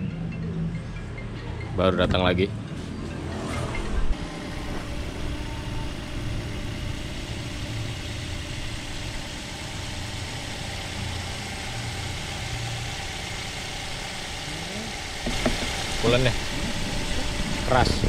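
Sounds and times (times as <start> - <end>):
car engine idling: 4.1 - 18.0.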